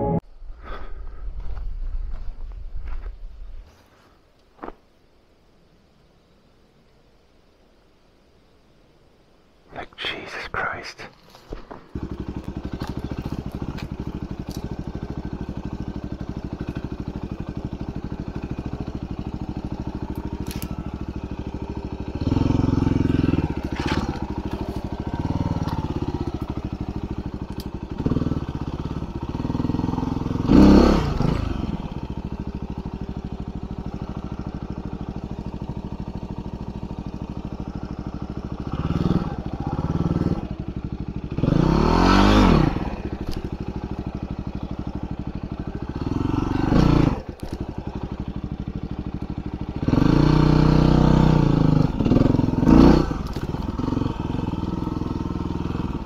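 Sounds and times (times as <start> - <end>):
motorcycle engine revving: 11.9 - 56.0.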